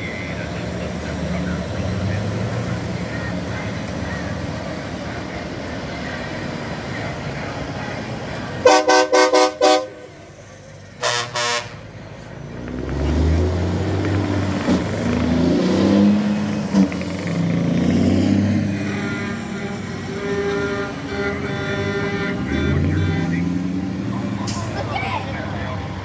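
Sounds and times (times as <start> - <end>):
heavy vehicle engine passing: 0.0 - 26.0
truck air horn blasts: 8.6 - 10.3, 11.0 - 11.9, 18.7 - 23.1.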